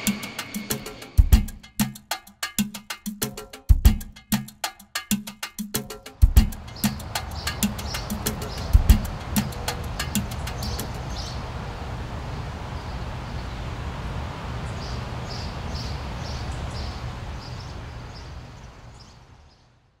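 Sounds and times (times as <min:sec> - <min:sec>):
steady low rumble: 0:00.0 - 0:01.5
birds chirping: 0:06.3 - 0:13.9, 0:14.6 - 0:19.8.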